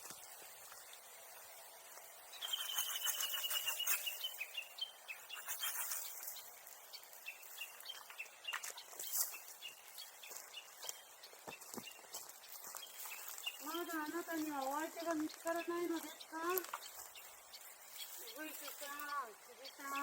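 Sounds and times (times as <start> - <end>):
bird whistling call: 2.4 - 6.2.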